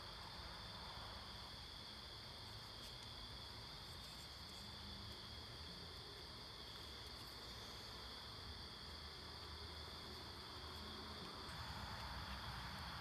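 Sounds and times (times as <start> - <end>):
low hiss: 0.0 - 13.0.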